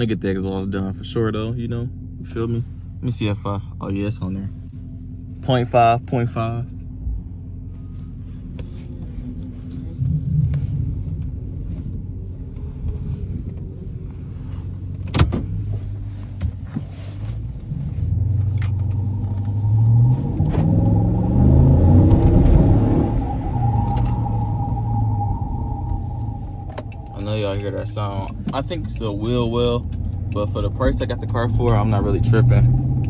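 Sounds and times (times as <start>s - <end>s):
car engine accelerating: 0.0s - 33.0s
steady whine: 4.2s - 33.0s.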